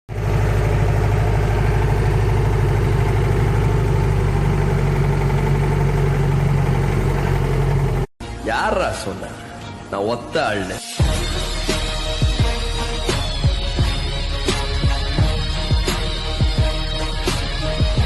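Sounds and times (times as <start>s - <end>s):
jeep engine droning: 0.1s - 8.1s.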